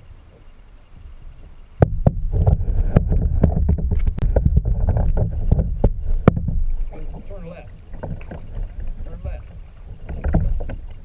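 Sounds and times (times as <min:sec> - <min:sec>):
wind rumble on microphone: 0:00.0 - 0:11.0
kayak paddle knocks and splashes: 0:01.8 - 0:11.0.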